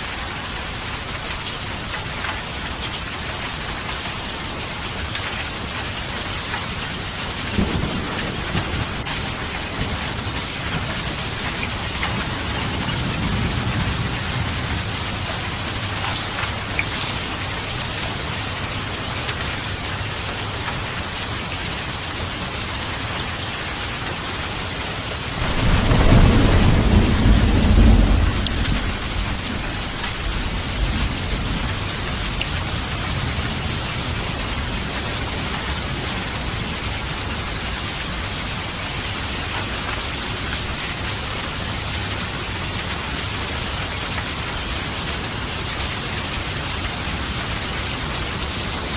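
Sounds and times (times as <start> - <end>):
heavy rain: 0.0 - 48.9
rolling thunder: 7.5 - 16.6, 25.3 - 36.8.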